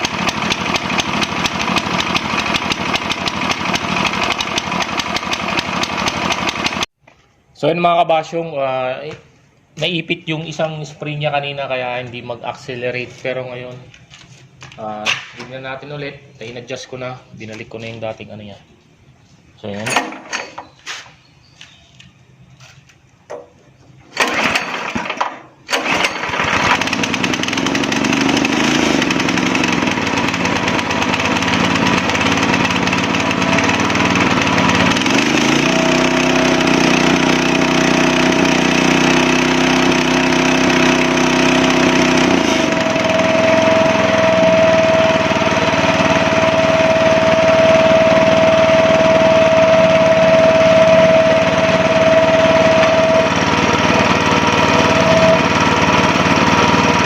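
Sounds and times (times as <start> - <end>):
small gasoline engine running: 0.0 - 6.9, 24.1 - 57.0.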